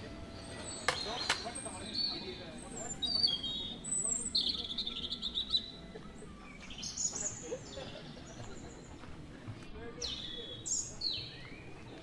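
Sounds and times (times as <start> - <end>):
birds chirping: 0.0 - 12.0
wavering bird call: 0.4 - 8.3.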